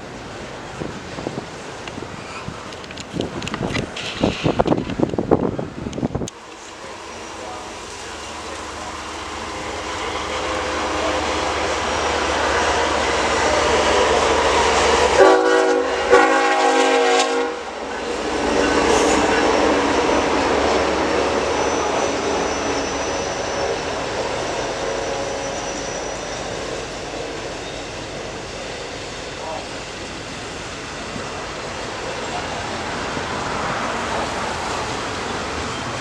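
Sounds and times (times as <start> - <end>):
train rumbling on rails: 0.0 - 36.0
locomotive air horn blasts: 15.1 - 17.7, 21.2 - 26.3.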